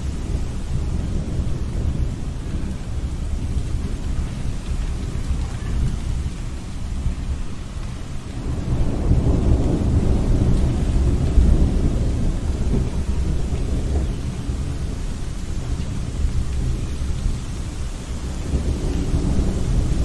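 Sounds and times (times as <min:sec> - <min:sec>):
strong wind rumbling: 0:00.0 - 0:20.0.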